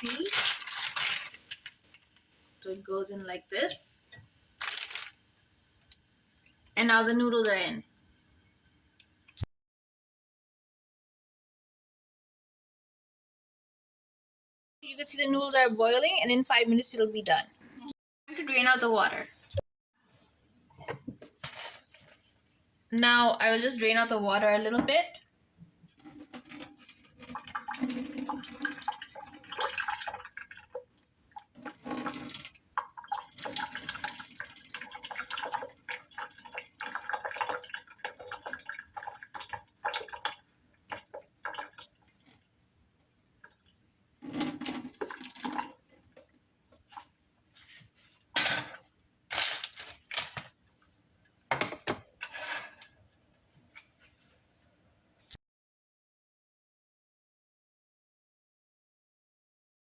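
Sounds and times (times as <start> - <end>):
water pouring and splashing: 0.0 - 5.4, 25.9 - 42.5, 43.4 - 47.1.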